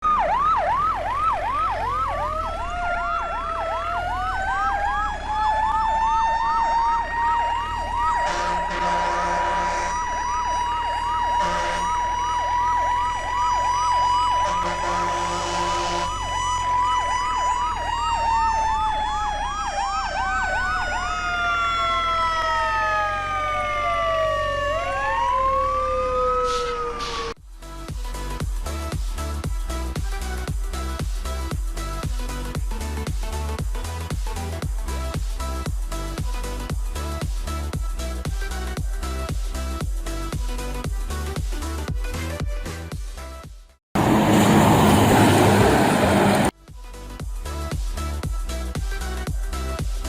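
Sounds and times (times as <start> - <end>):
siren wail: 0.0 - 27.4, 44.0 - 46.6
siren yelp: 0.0 - 27.4
horn blasts: 8.2 - 10.1, 11.4 - 12.1, 14.3 - 16.3.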